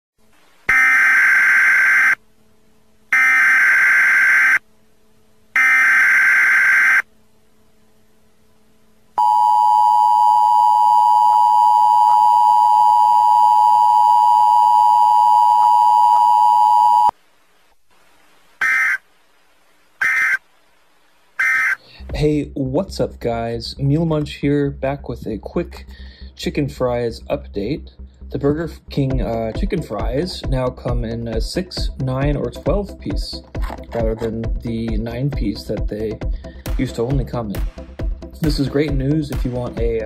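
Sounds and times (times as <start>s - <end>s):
buzzy data bursts: 0.7s - 2.2s, 3.1s - 4.6s, 5.5s - 7.1s, 18.6s - 19.0s, 20.0s - 20.4s, 21.4s - 21.8s.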